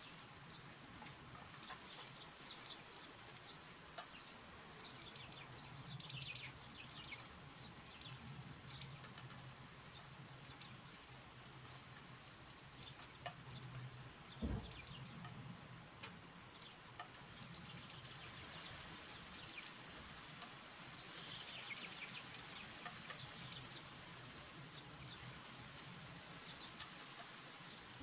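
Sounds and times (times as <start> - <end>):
outdoor background hiss: 0.0 - 28.0
songbirds chirping: 0.0 - 28.0
low thump: 14.4 - 14.9.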